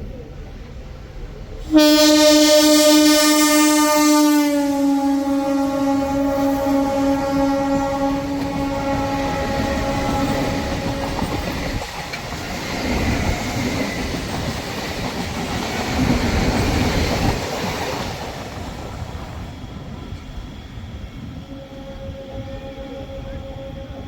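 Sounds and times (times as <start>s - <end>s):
train horn: 1.6s - 12.2s, 21.4s - 24.0s
train wheels clattering over rails: 7.9s - 21.4s.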